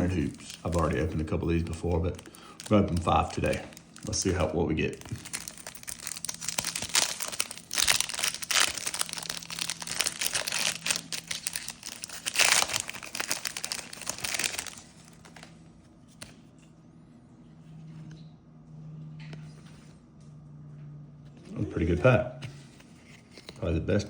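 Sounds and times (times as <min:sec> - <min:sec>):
plastic wrapper crinkling and tearing: 0:00.0 - 0:15.6.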